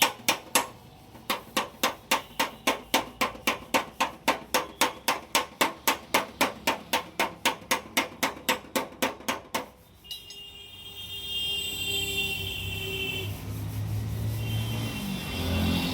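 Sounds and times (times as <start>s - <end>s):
hammer on steel panel: 0.0s - 10.5s.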